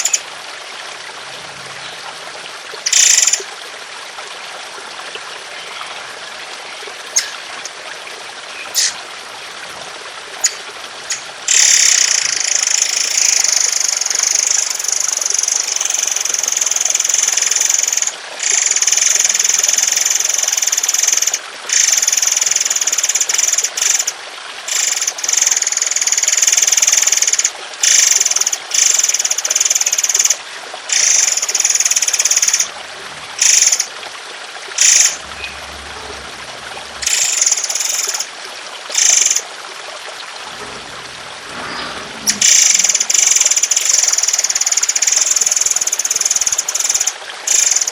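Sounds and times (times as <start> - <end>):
water trickling: 0.0 - 47.9
songbird singing: 5.5 - 9.8, 10.4 - 15.2.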